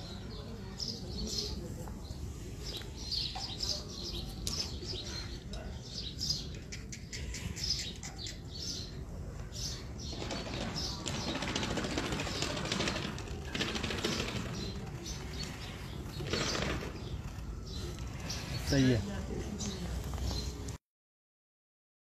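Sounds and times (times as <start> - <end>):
small birds chirping: 0.0 - 20.8.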